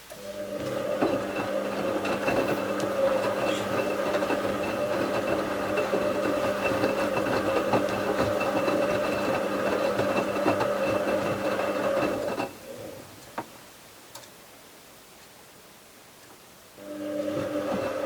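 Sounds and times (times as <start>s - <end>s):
washing machine motor hum and whine: 0.0s - 13.0s, 16.8s - 18.0s
washing machine drum rattle: 0.4s - 12.5s.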